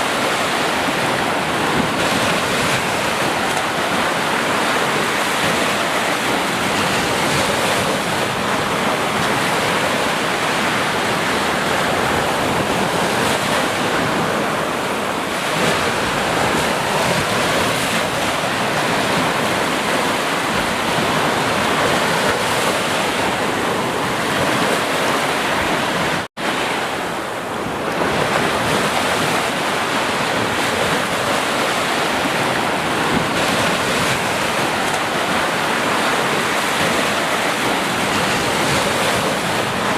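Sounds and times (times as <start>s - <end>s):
sea surf washing: 0.0s - 39.9s.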